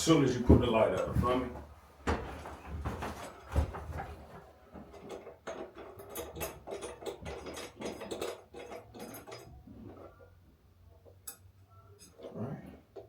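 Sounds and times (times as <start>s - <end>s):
small hardware clicking and rattling: 4.8s - 13.0s.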